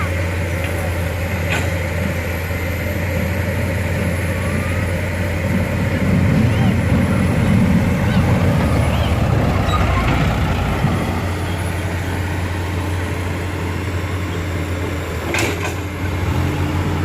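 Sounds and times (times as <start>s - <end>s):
heavy diesel engines humming: 0.0s - 17.0s.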